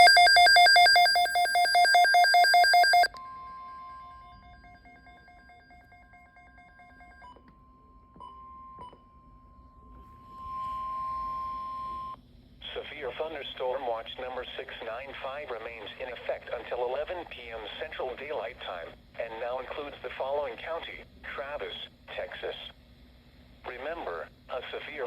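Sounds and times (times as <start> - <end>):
rapid electronic beeping: 0.0 - 3.1
warning alarm tone: 0.0 - 7.2.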